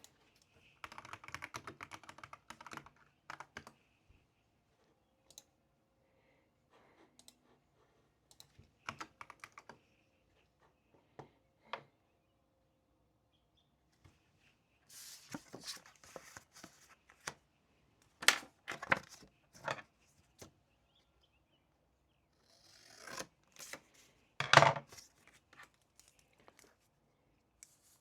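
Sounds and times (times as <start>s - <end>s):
paper rustling: 14.9s - 17.4s.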